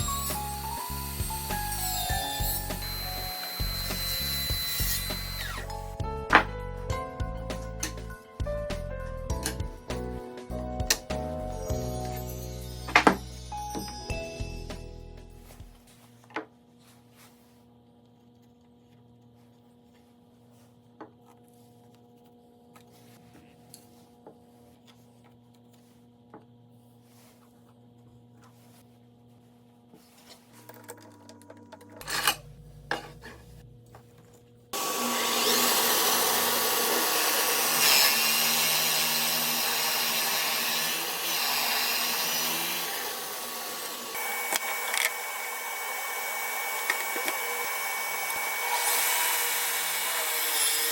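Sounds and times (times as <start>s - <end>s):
power tool cutting wood: 0.0s - 5.8s, 34.8s - 50.9s.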